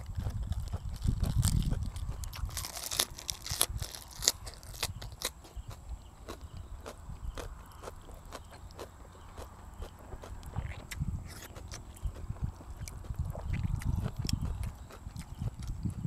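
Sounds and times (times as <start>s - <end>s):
crunching and chewing food: 0.0s - 16.0s
low rumble: 9.7s - 16.0s.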